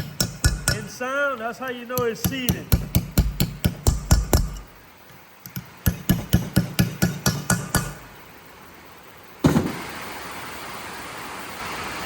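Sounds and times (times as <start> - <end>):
hammer tapping on metal: 0.0 - 1.0, 1.9 - 4.7, 5.4 - 8.1.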